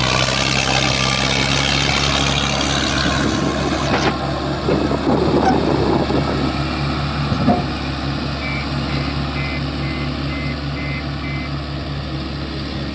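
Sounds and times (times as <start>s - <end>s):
diesel engine running: 0.0s - 12.9s
reversing alarm beeping: 7.5s - 11.6s.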